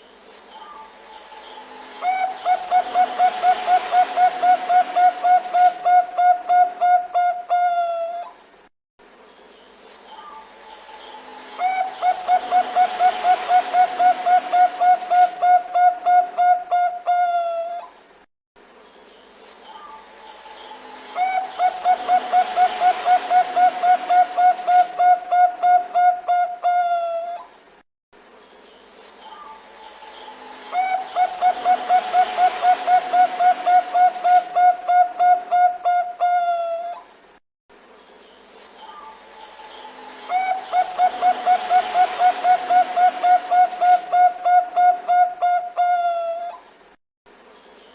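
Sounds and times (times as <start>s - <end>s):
dove cooing: 1.4s - 8.4s, 11.6s - 17.9s, 20.6s - 27.5s, 30.2s - 37.0s, 39.7s - 46.6s.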